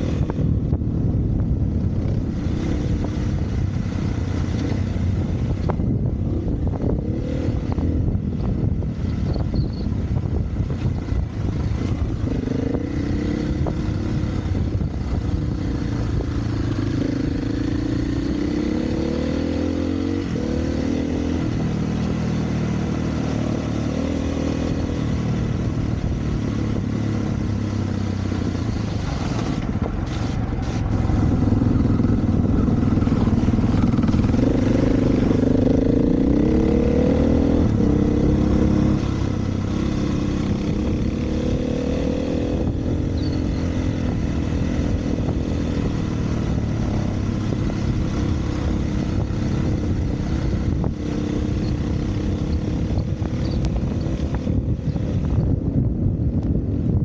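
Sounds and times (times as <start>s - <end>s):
dirt bike engine revving: 16.5s - 21.4s, 29.1s - 53.0s.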